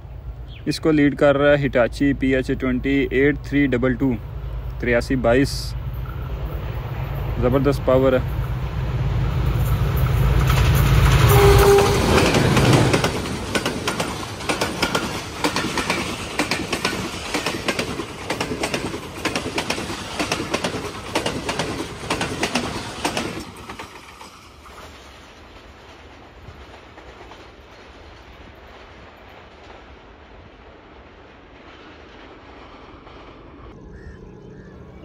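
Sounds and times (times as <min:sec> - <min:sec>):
locomotive engine drone: 0:00.0 - 0:16.6, 0:33.6 - 0:35.0
train wheels clickety-clacking: 0:09.4 - 0:29.9.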